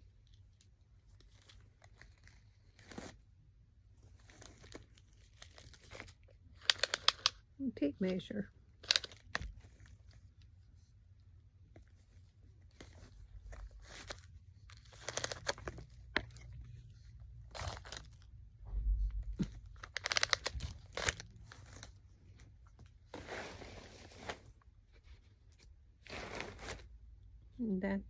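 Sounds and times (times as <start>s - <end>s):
packaging rustling and crinkling: 0.0s - 3.3s, 4.0s - 7.4s, 8.8s - 10.6s, 11.8s - 18.3s, 19.0s - 24.7s, 26.0s - 26.9s.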